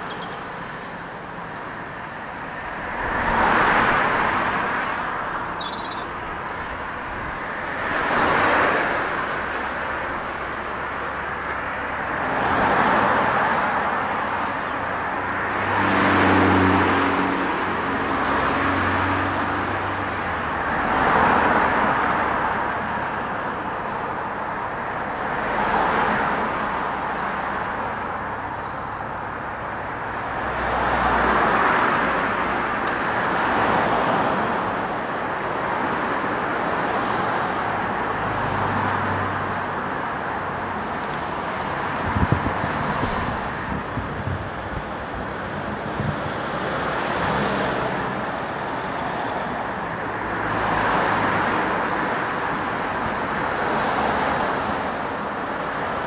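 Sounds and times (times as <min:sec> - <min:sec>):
cars passing: 0:00.0 - 0:56.0.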